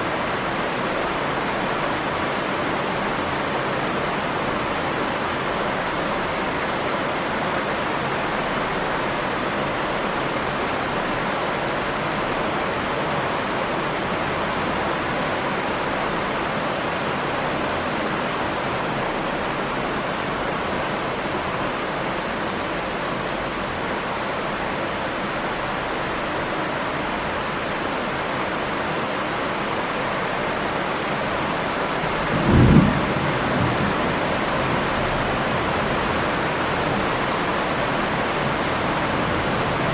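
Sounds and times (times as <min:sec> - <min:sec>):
rain falling: 0:00.0 - 0:39.9
thunder rumble: 0:32.0 - 0:35.6.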